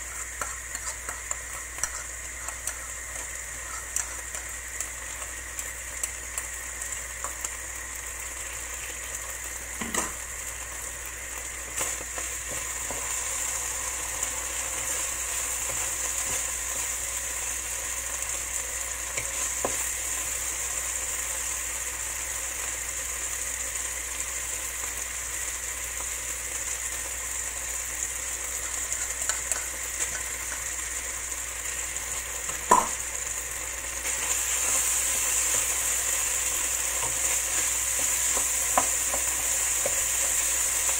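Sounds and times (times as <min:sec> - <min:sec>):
food sizzling in a wok: 0:00.0 - 0:40.9.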